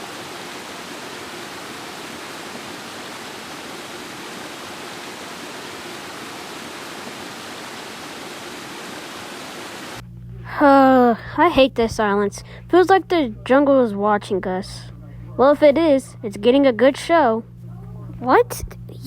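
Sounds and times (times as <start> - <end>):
rushing water: 0.0 - 10.0.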